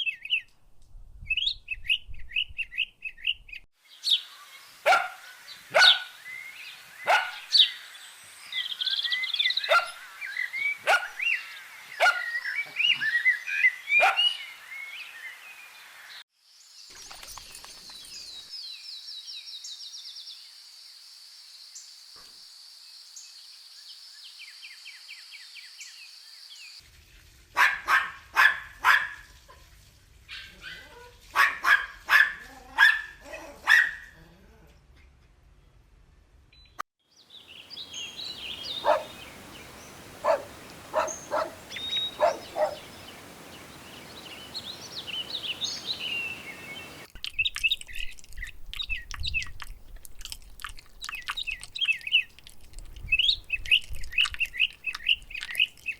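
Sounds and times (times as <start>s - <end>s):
dogs barking: 4.9s - 6.2s, 7.0s - 7.6s, 9.7s - 10.0s, 10.8s - 11.2s, 12.0s - 12.4s, 14.0s - 14.4s, 27.6s - 29.2s, 30.4s - 34.1s, 38.1s - 47.1s
birds chirping: 4.9s - 7.9s, 8.6s - 14.8s, 37.3s - 49.5s, 51.0s - 52.4s, 53.1s - 55.9s.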